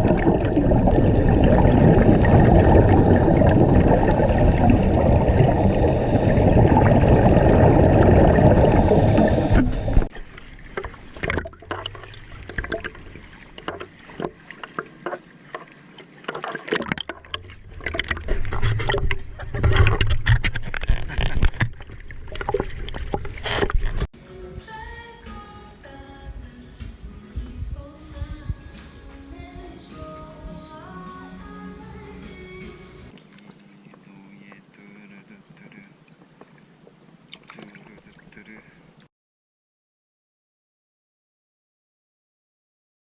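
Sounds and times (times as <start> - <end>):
water sloshing and splashing: 0.0 - 24.1, 36.0 - 39.1.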